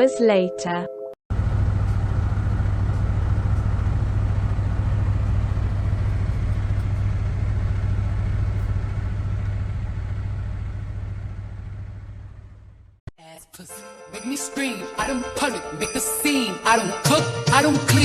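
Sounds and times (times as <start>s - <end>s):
diesel truck engine rumbling: 1.3s - 13.0s.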